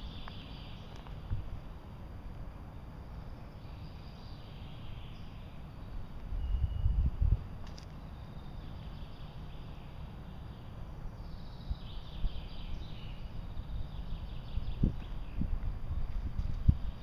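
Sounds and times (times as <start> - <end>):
faint high chirps: 3.4 - 7.2.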